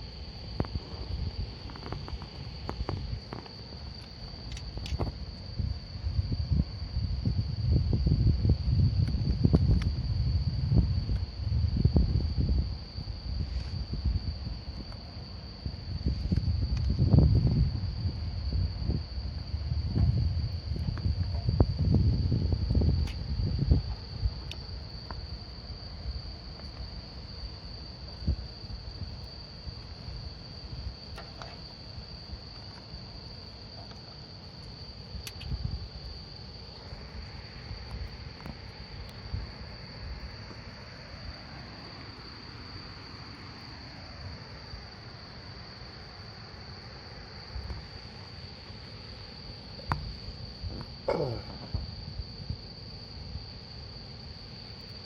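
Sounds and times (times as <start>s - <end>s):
campfire crackling: 0.0s - 55.0s
crickets chirring: 0.0s - 55.0s
burning wood popping: 0.5s - 5.5s.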